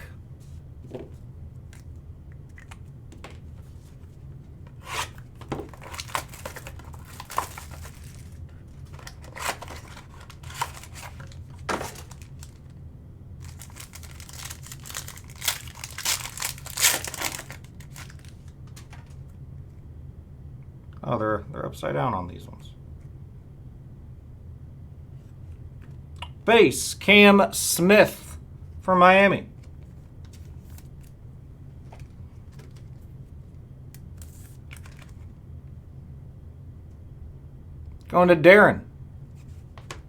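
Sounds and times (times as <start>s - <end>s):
wrapper tearing and crinkling: 4.9s - 12.7s, 13.4s - 19.0s.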